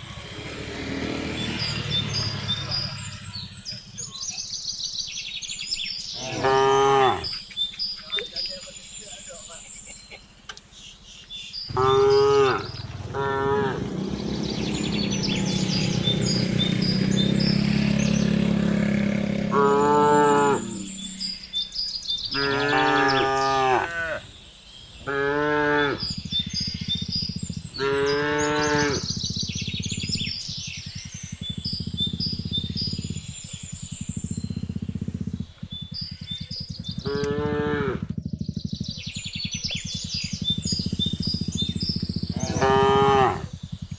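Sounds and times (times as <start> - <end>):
faint bird chirps: 0.0 - 43.9
cattle mooing: 6.2 - 7.3, 11.7 - 14.1, 19.5 - 21.1, 22.3 - 24.3, 25.0 - 26.2, 27.8 - 29.1, 37.0 - 38.1, 42.3 - 43.5.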